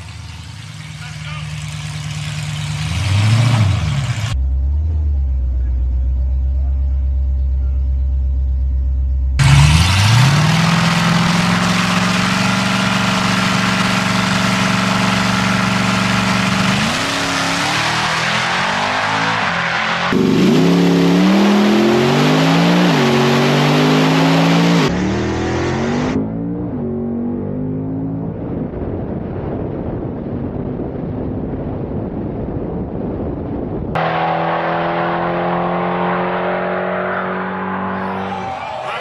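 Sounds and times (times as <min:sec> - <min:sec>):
car engine revving at full throttle: 0:00.0 - 0:04.4, 0:09.4 - 0:28.7, 0:34.0 - 0:38.8.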